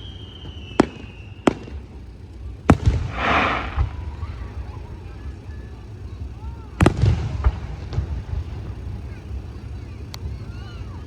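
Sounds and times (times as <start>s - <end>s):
firework shells bursting: 0.0s - 6.1s
low rumble: 2.6s - 5.4s.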